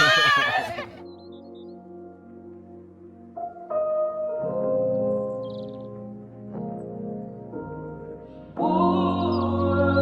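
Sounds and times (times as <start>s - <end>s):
people shouting and cheering: 0.0s - 1.0s.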